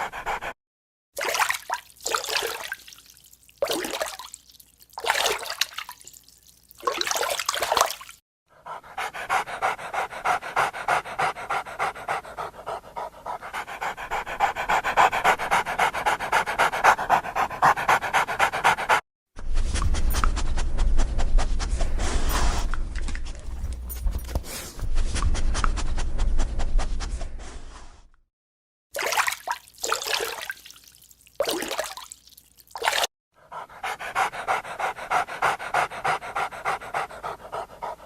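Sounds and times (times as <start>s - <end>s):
dog panting: 0.0s - 0.6s, 8.5s - 27.3s, 33.4s - 38.0s.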